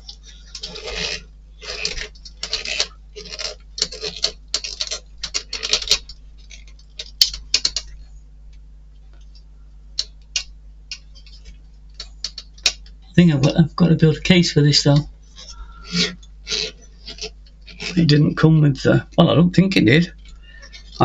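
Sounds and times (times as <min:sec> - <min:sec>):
scrapes and clicks on model kit: 0:00.0 - 0:08.0, 0:10.0 - 0:13.0, 0:15.3 - 0:18.2, 0:19.0 - 0:21.0.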